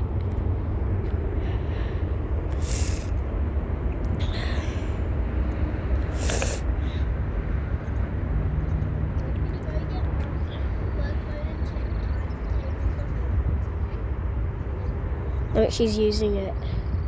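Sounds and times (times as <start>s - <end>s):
short breathy hisses: 2.6s - 3.1s, 6.1s - 7.0s.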